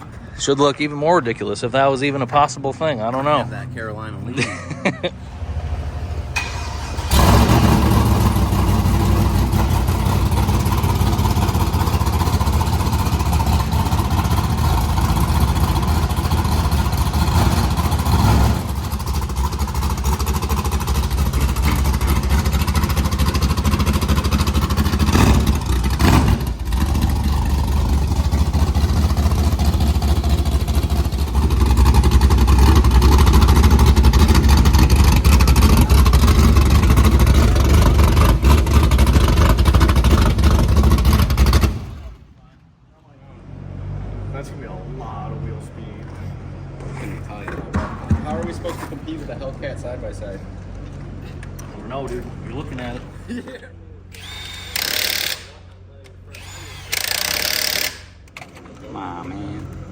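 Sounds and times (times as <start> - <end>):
engine running loudly: 5.2 - 42.2.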